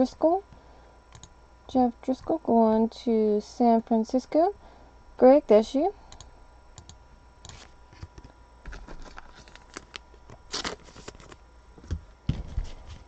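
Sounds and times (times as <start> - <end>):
card scrape: 8.7 - 11.4
cards sliding and rustling: 8.7 - 11.4.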